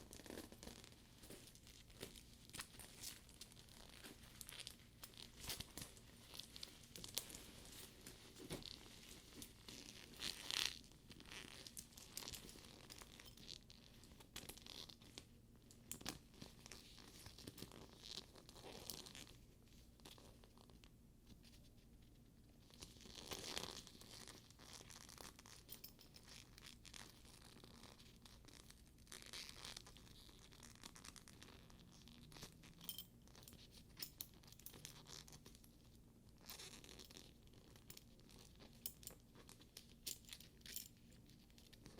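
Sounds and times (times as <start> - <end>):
leather rustling: 0.0 - 15.3, 16.0 - 20.7.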